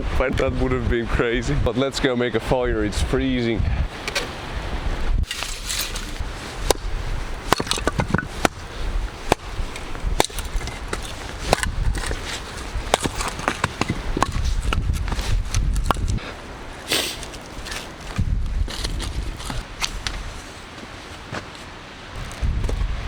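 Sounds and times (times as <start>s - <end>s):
wind rumble on microphone: 0.0s - 20.4s, 22.1s - 23.0s
dry wood snapping and crackling: 5.2s - 16.2s, 17.0s - 20.2s.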